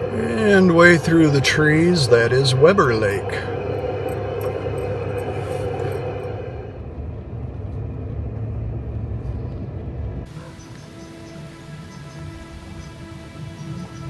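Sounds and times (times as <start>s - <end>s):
quiet background music: 0.0s - 6.9s, 10.3s - 14.0s
vehicle rumble on rough road: 3.1s - 10.6s.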